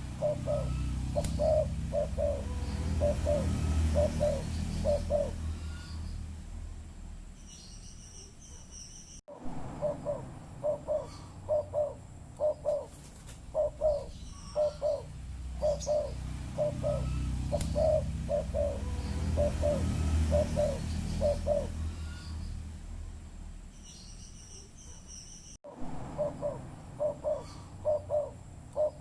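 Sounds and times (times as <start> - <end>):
dove cooing: 0.0 - 5.9, 9.8 - 22.3, 26.2 - 29.0
low steady rumble: 0.0 - 7.6, 9.3 - 23.9, 25.7 - 29.0.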